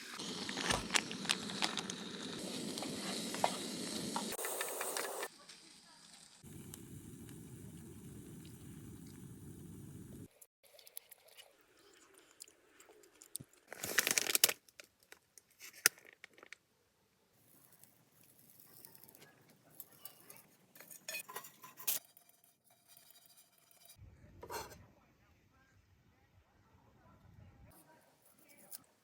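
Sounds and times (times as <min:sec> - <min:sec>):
steady hiss: 0:00.0 - 0:10.3
crinkling and rustling: 0:00.4 - 0:03.6, 0:10.7 - 0:16.7.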